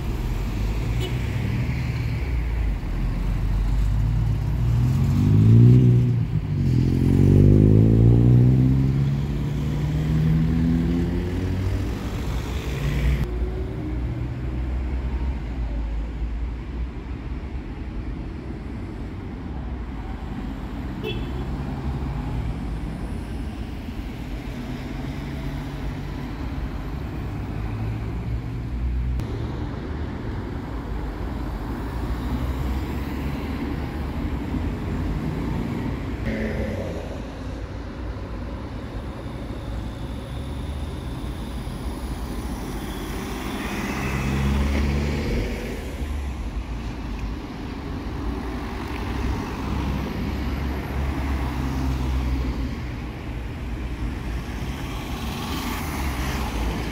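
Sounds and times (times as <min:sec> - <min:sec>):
cars driving past: 0:00.0 - 0:15.4, 0:19.9 - 0:56.9
loud vehicle passing: 0:04.0 - 0:13.3, 0:32.1 - 0:38.8, 0:43.3 - 0:46.3.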